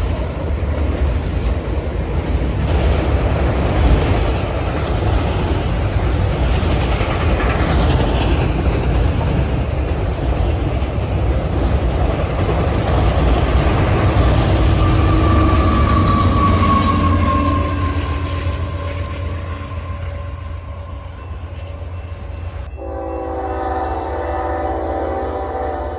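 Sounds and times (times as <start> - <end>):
train wheels rumbling on rail: 0.0 - 22.7.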